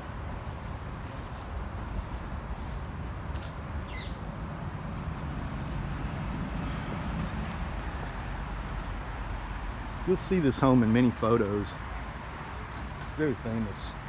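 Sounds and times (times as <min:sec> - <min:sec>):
low outdoor rumble: 0:00.0 - 0:14.0
squawking bird call: 0:03.9 - 0:04.2.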